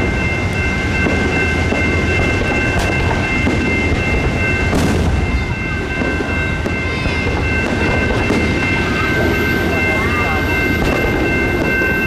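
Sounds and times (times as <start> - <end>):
crossing signal ringing: 0.0 - 12.0
passenger train rumbling past: 0.0 - 12.0
fireworks booming: 0.9 - 12.0.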